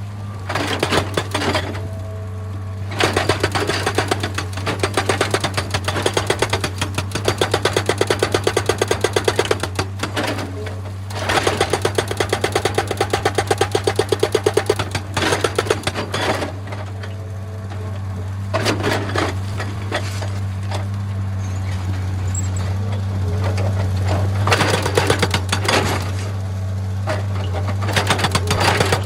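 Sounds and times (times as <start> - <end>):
diesel engine running: 0.0 - 29.0
hydraulic breaker hammering stone: 0.5 - 1.8, 2.9 - 16.8, 24.4 - 26.2, 27.4 - 29.0.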